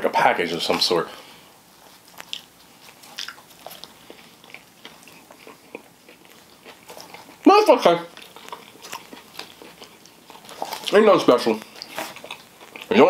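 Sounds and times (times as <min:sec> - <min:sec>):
person chewing close to microphone: 0:01.7 - 0:07.5, 0:08.1 - 0:13.0
mouth clicks and smacks: 0:02.1 - 0:04.0.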